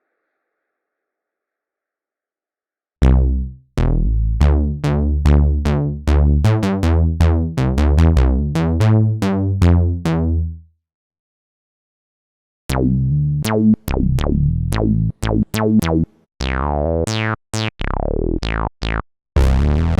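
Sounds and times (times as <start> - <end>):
synthesizer bass sequence: 3.0 - 10.6, 12.7 - 19.9.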